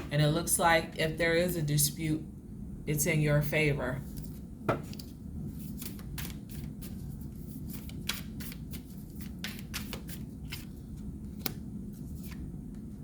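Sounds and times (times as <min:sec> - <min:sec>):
low steady hum: 0:00.0 - 0:13.0
cards clicking and flicking: 0:07.7 - 0:10.7, 0:11.3 - 0:11.6.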